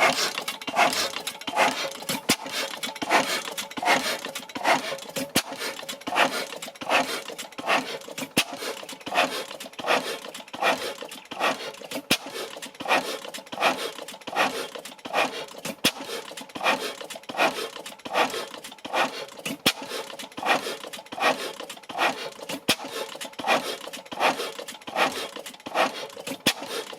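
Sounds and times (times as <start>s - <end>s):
oil engine running: 0.0s - 26.9s.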